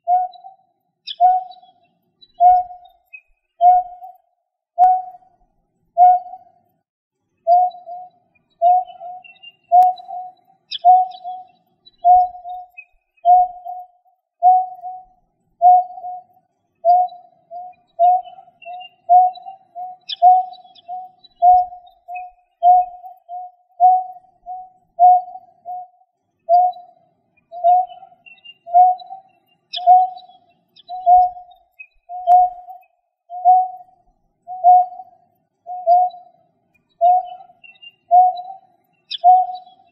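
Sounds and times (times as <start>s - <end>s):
bird hooting call: 0.0s - 0.6s, 1.2s - 1.7s, 2.4s - 2.8s, 3.6s - 4.1s, 6.0s - 6.4s, 7.5s - 12.7s, 13.3s - 13.8s, 14.4s - 15.0s, 15.6s - 25.9s, 27.5s - 31.5s, 33.3s - 33.8s, 34.5s - 35.1s, 35.7s - 36.2s, 37.0s - 39.9s
faint high bird chirps: 0.0s - 5.4s, 6.0s - 6.8s, 7.4s - 39.9s.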